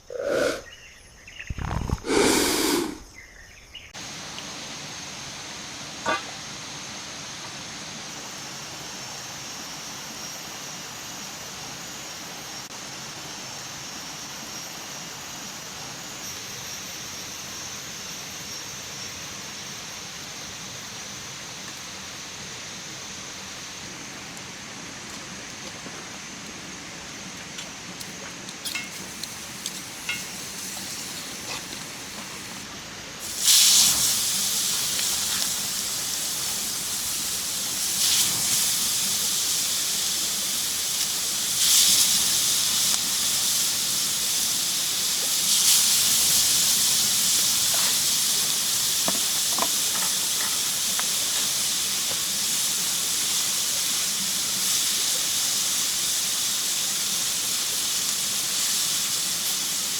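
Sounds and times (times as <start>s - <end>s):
food sizzling in hot pan: 4.0s - 8.8s, 28.6s - 59.9s.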